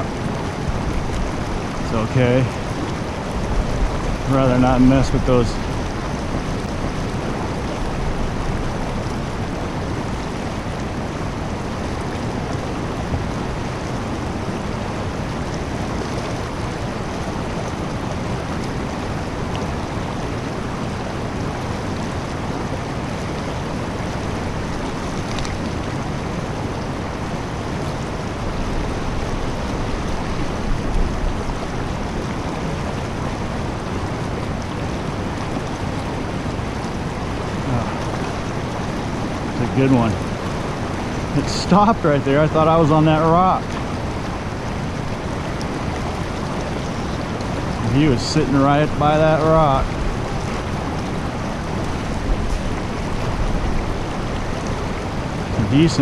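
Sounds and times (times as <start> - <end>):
fast-flowing creek water: 0.0 - 56.0.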